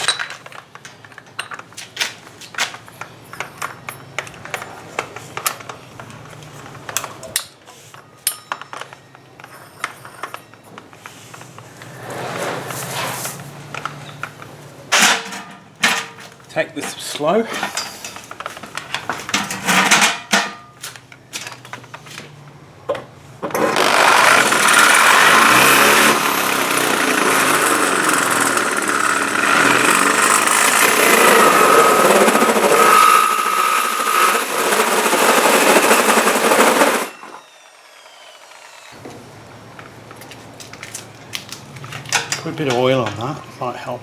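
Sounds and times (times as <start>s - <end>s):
power drill hole saw grinding metal: 23.6s - 39.0s.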